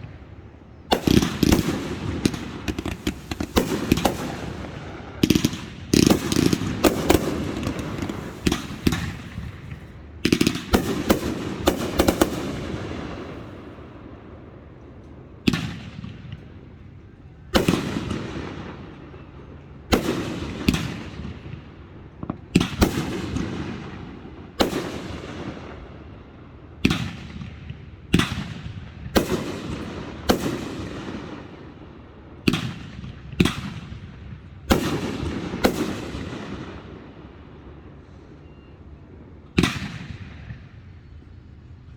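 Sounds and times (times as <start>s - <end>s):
fireworks bangs: 0.0s - 13.9s, 32.5s - 37.1s.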